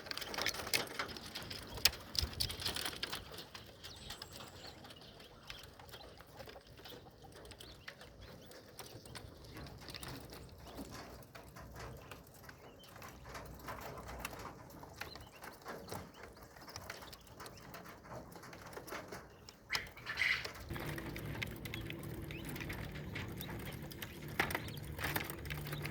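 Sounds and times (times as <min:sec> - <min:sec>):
quails calling softly: 0:19.3 - 0:25.9.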